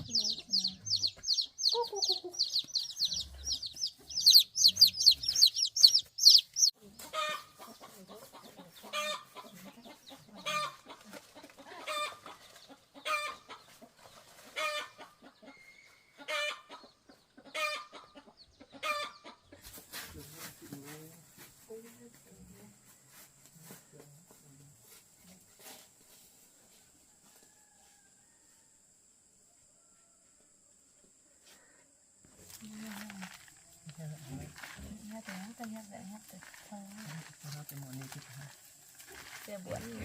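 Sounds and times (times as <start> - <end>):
birds chirping: 0.0 - 10.8.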